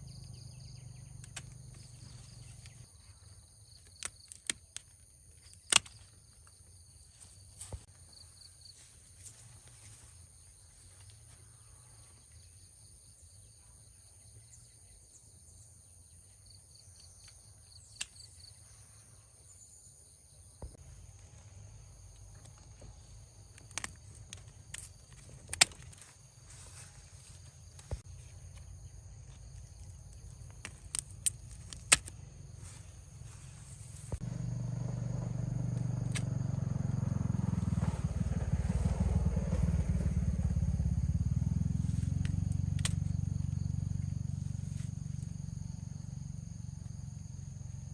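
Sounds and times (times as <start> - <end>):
insects chirring: 0.0 - 47.9
sharp clicks and snaps: 23.5 - 26.0, 30.5 - 32.2
low rumble: 30.0 - 47.4.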